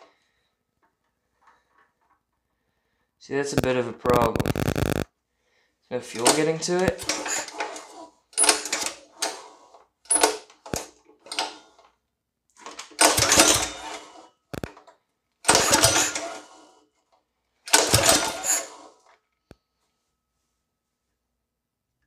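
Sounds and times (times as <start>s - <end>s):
engine recoil starter pulls: 6.2s - 9.5s, 12.6s - 14.1s, 15.5s - 16.5s, 17.7s - 18.9s.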